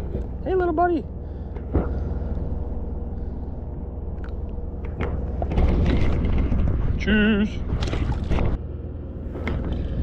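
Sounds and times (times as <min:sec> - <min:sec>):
wind rumble on microphone: 0:01.6 - 0:08.6.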